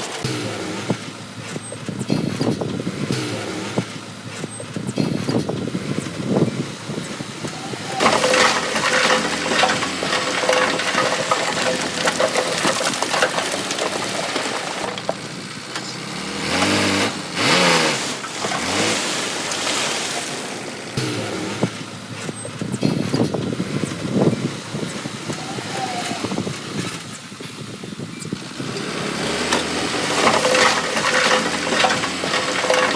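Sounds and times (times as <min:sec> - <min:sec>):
diesel engine revving: 0:00.1 - 0:32.9
machinery clattering and grinding: 0:07.9 - 0:23.3, 0:28.4 - 0:32.9.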